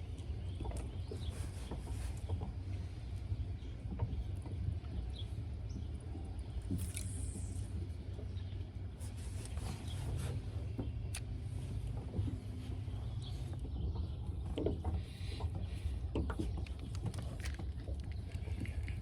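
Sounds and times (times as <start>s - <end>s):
boat low rumble: 0.0s - 19.0s.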